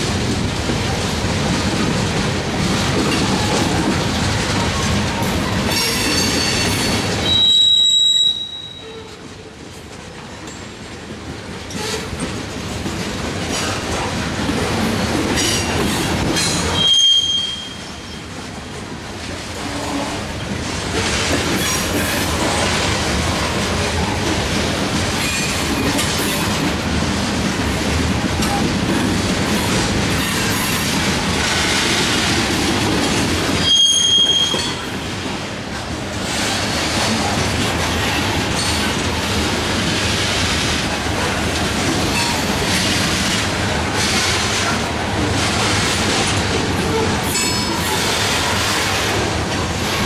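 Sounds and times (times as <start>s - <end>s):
steel wheels rattling on rail: 0.0s - 50.0s
high-pitched wheel squeal: 7.2s - 9.0s, 16.8s - 18.0s, 33.6s - 34.8s.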